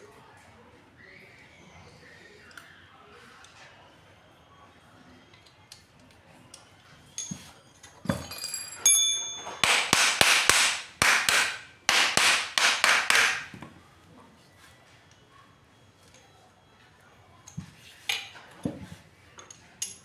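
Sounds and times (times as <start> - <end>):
hammer striking metal: 9.0 - 13.6.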